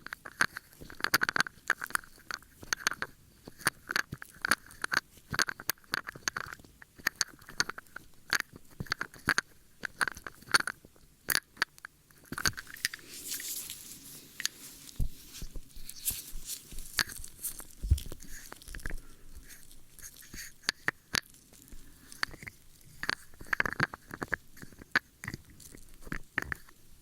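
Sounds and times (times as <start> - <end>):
ear-cleaning crackles and scratching: 0.0 - 27.0
soft scratchy rustling: 12.1 - 27.0.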